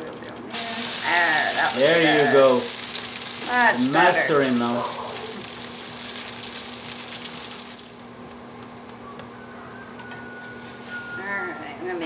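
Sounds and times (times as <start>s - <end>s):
pancake sizzling in hot oil: 0.5s - 8.2s.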